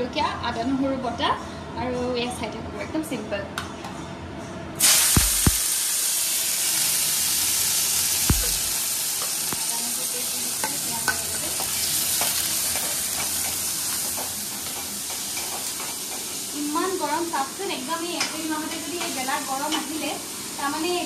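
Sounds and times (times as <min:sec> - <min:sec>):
food sizzling in hot oil: 0:04.8 - 0:21.0
knock: 0:08.3 - 0:08.7.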